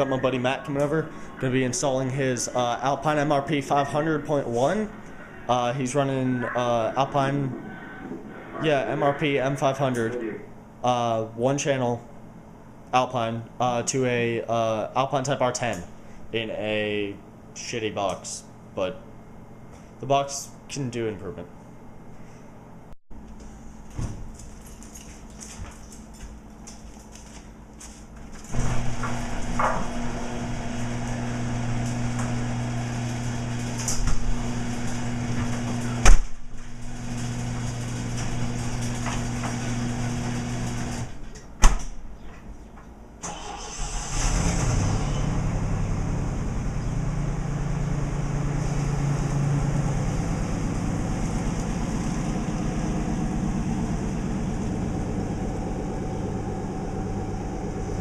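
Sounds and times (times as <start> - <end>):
steady low hum: 0.0 - 43.2, 45.0 - 58.0
car engine starting and idling: 28.5 - 41.3, 43.2 - 58.0.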